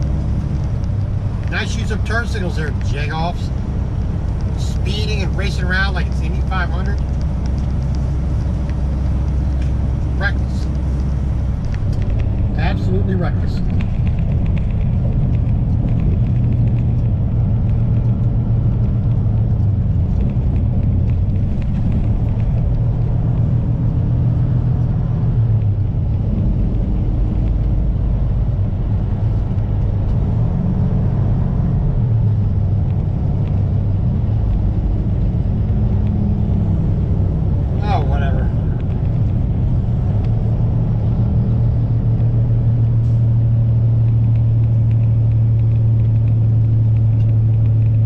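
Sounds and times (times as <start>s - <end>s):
road noise: 0.0s - 48.0s
truck diesel engine drone: 0.0s - 48.0s.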